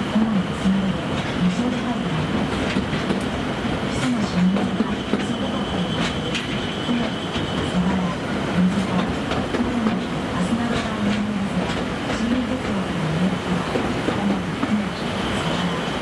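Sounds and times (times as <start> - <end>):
diesel locomotive engine humming: 0.0 - 16.0.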